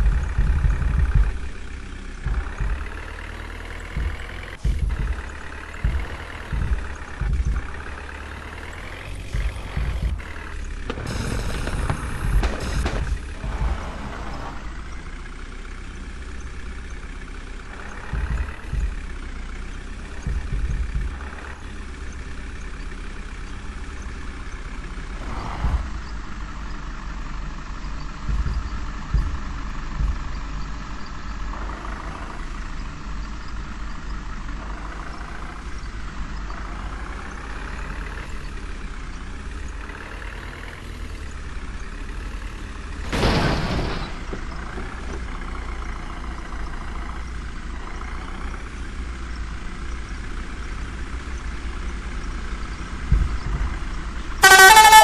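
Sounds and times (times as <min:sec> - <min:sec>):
heavy truck engine running: 0:00.0 - 0:55.0
thumps and knocks: 0:04.0 - 0:08.4, 0:20.2 - 0:21.5, 0:28.2 - 0:30.6.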